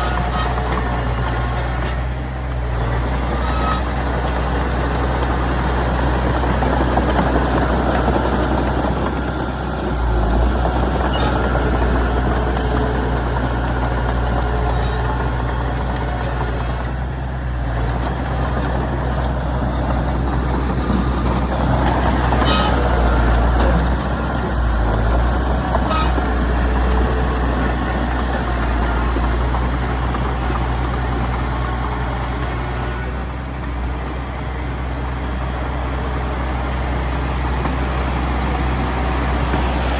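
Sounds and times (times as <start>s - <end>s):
diesel earthmoving machinery running: 0.0s - 39.9s.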